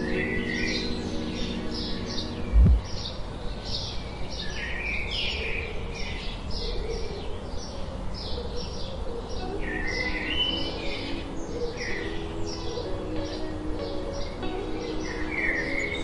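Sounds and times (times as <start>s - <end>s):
birds chirping: 0.0s - 16.0s
deep thump: 2.5s - 2.8s.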